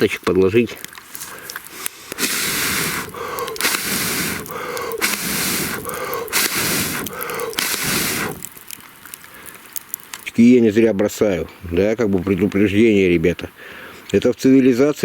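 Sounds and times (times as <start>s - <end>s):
person blowing on campfire: 1.1s - 9.7s.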